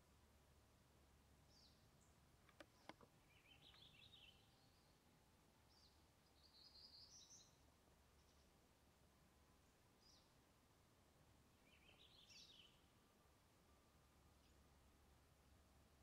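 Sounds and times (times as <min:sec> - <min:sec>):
songbirds chirping: 0:00.0 - 0:16.0
sharp clicks: 0:02.4 - 0:03.1.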